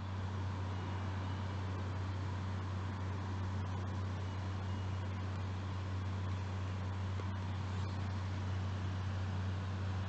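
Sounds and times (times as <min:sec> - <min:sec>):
constant hiss: 0:00.0 - 0:10.0
engine or generator humming: 0:00.0 - 0:10.0.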